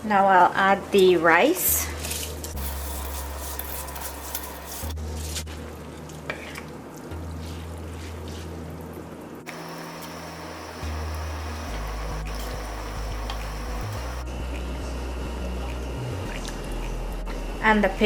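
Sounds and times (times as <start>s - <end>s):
spatula scraping in wok: 2.6s - 5.4s
rice sizzling in oil: 2.6s - 5.5s, 9.5s - 14.2s.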